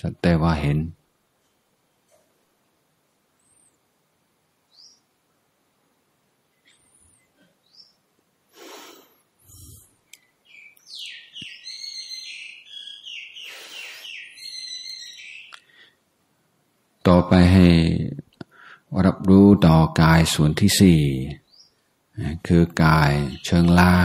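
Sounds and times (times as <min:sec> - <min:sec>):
bird chirping and warbling: 0:04.7 - 0:05.1, 0:06.5 - 0:08.0, 0:10.4 - 0:15.7, 0:21.4 - 0:21.8, 0:22.8 - 0:24.0.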